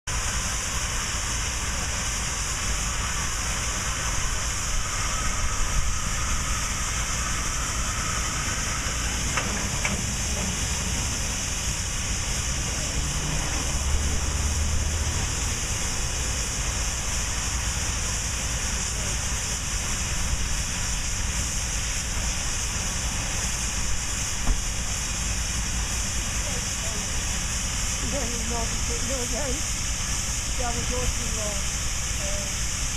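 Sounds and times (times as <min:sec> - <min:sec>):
steam locomotive hissing: 0:00.1 - 0:32.9
low rumble: 0:01.6 - 0:31.8.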